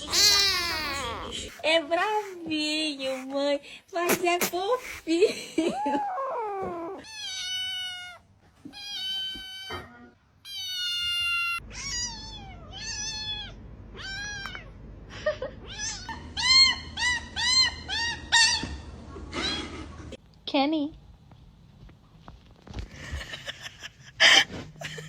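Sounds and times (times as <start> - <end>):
cat meowing: 0.0 - 1.3, 6.6 - 14.7.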